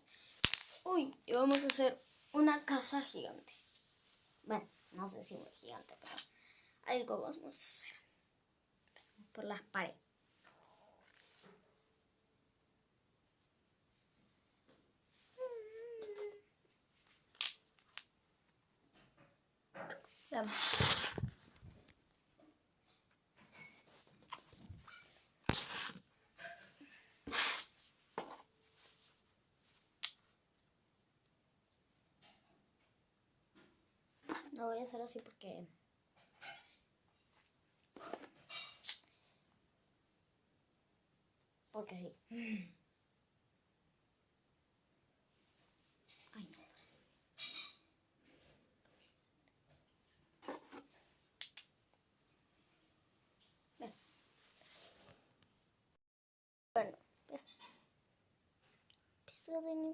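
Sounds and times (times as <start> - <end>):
wooden sticks clicking and knocking: 0.4 - 1.9, 17.4 - 18.1, 51.4 - 51.7
wooden sticks knocking: 1.5 - 1.8
rustling: 20.2 - 22.1, 23.6 - 29.9.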